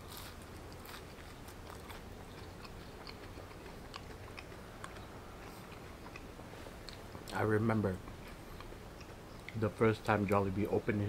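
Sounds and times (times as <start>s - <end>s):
close-up chewing: 0.0s - 9.6s.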